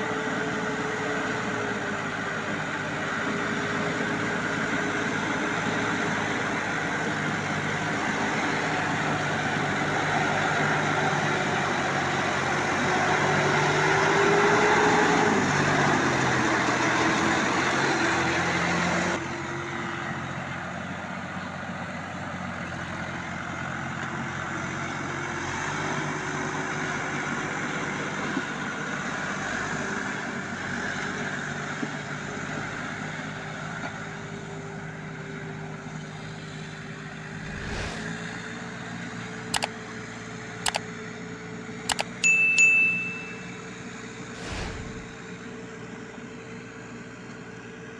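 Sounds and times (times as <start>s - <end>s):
tractor engine running: 15.4s - 47.9s.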